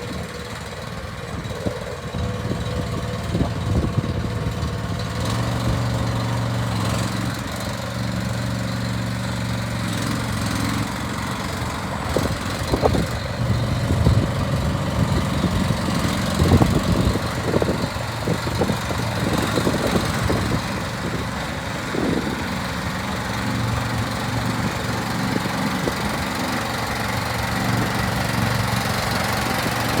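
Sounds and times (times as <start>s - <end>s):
excavator engine running: 0.0s - 30.0s.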